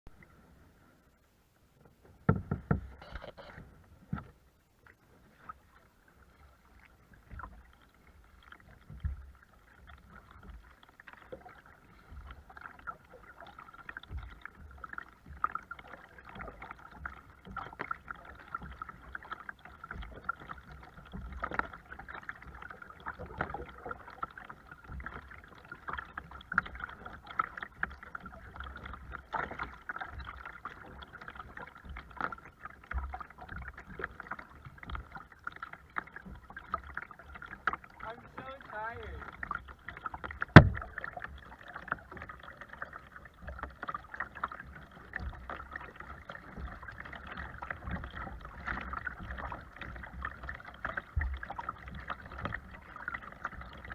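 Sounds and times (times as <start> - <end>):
water splashing around kayak: 0.1 - 53.9
knocks against kayak hull: 2.2 - 3.0, 40.4 - 41.0.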